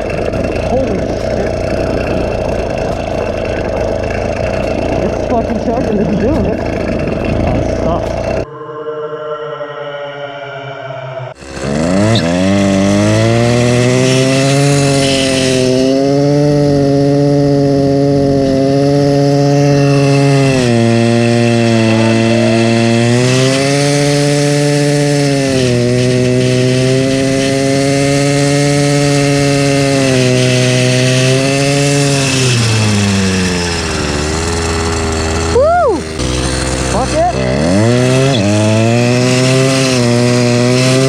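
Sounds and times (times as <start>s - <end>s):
small motor bike engine running: 0.0s - 8.5s, 11.4s - 41.0s.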